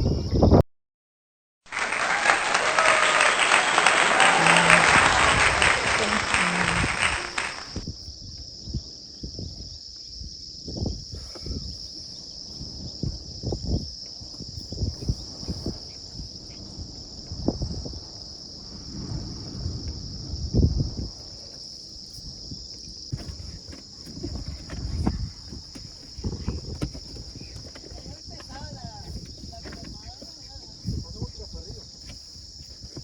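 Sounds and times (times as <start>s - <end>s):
loud rushing hiss: 1.7s - 7.9s
insects chirring: 1.7s - 33.0s
low thumps: 23.1s - 31.3s.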